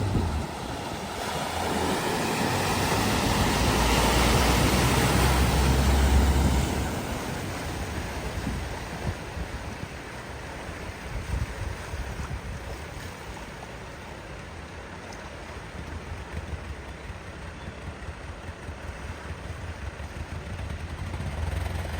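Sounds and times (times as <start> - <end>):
low rumble: 0.0 - 10.7
car splashing through water: 0.0 - 21.9
wind: 0.0 - 21.9.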